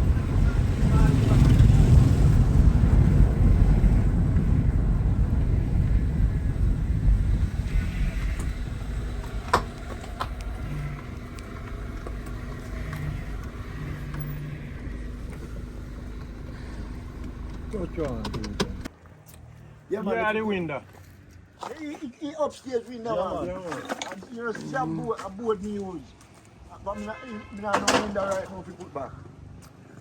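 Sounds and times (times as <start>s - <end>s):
car engine rumbling: 0.0s - 18.9s.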